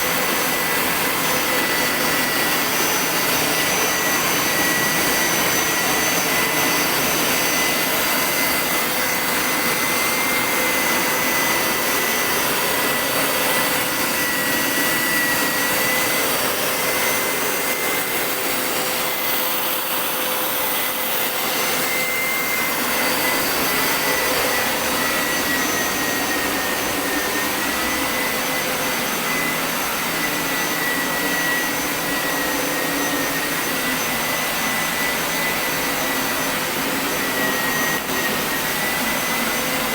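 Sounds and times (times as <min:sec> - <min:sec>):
carpet washer suction hiss: 0:00.0 - 0:39.9
high motor whine: 0:00.0 - 0:39.9.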